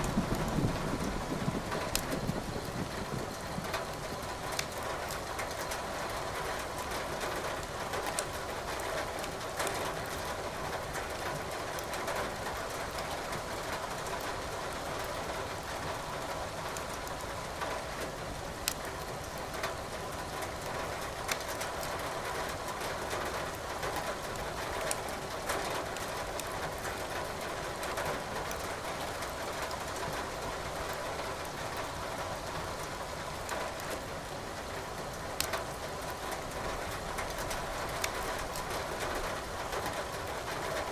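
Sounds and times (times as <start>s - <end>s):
steady rain: 0.0s - 40.9s
logs crackling in fireplace: 1.0s - 5.8s, 6.7s - 8.3s, 11.1s - 11.9s, 35.4s - 36.2s, 37.2s - 38.7s.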